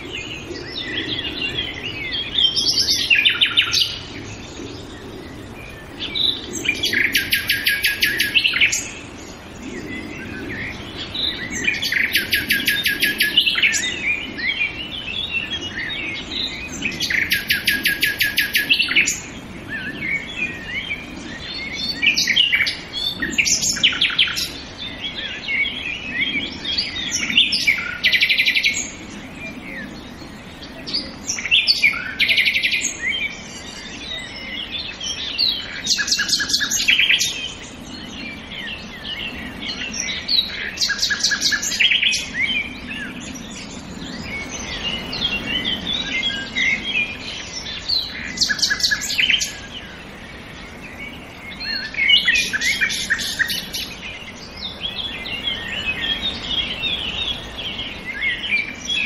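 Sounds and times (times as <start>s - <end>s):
songbirds chirping and whistling: 0.0s - 59.0s
loud rapid bird trill: 6.2s - 9.0s.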